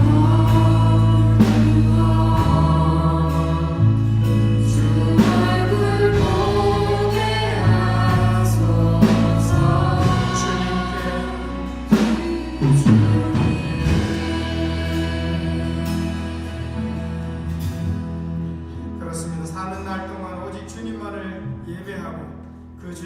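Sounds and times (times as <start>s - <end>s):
group singing: 0.0s - 17.8s
praise band playing: 0.0s - 23.0s.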